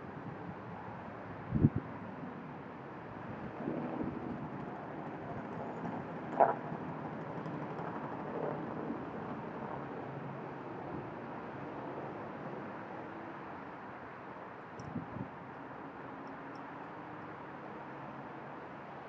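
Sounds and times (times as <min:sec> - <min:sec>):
wind and rain on microphone: 0:00.1 - 0:12.9, 0:14.8 - 0:15.5.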